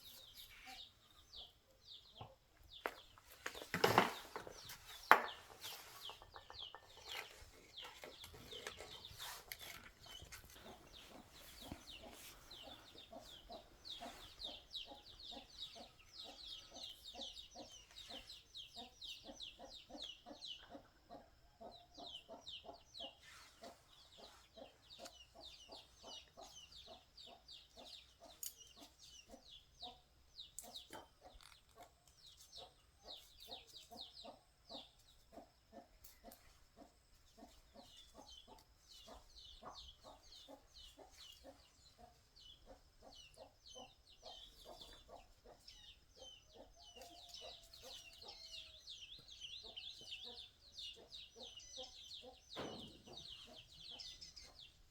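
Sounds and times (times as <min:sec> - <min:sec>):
bird clucking calls: 0:04.3 - 0:30.0.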